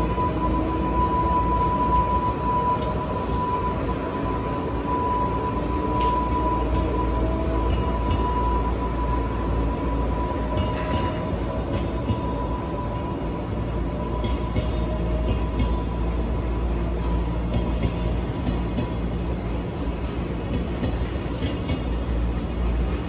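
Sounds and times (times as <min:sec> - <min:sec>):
thin steady whine: 0:00.0 - 0:23.0
train wheels rumbling: 0:00.0 - 0:23.0
wheels clacking over rail joints: 0:13.9 - 0:23.0.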